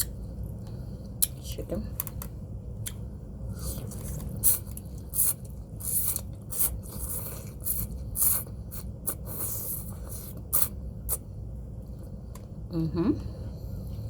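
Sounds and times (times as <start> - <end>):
slurping noodle soup: 3.5 - 11.2.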